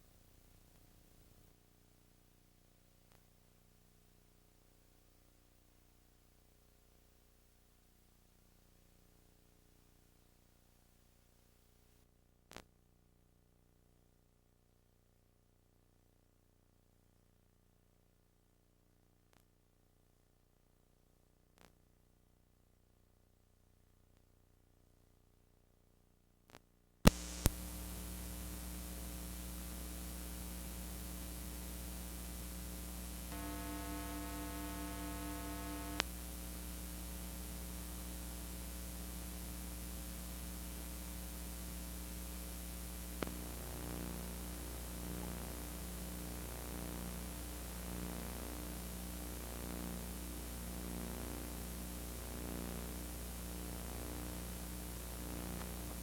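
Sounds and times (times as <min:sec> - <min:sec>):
tape static hiss: 0:00.0 - 0:01.6, 0:26.5 - 0:56.0
electrical mains hum: 0:27.1 - 0:56.0.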